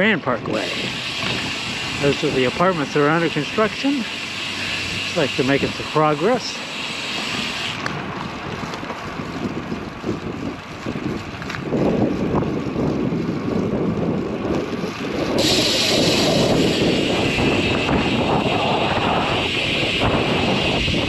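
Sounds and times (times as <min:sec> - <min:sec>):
wind buffeting microphone: 0:00.0 - 0:06.4, 0:07.1 - 0:21.0
steady hiss: 0:15.4 - 0:21.0.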